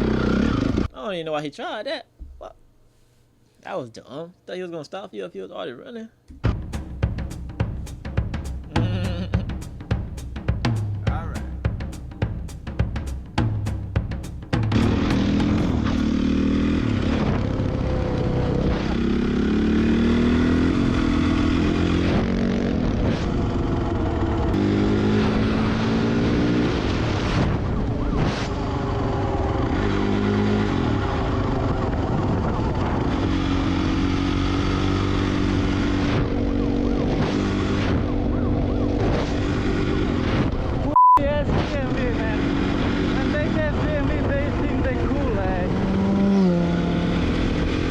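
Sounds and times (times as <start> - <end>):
dirt bike engines revving: 0.0 - 0.9, 14.7 - 40.9, 41.7 - 47.9.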